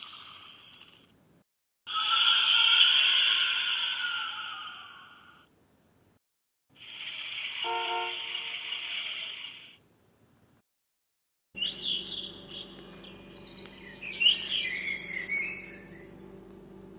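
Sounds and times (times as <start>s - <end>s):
bird-like chirps and whistles: 11.6s - 16.2s
faint electrical hum: 11.6s - 16.9s.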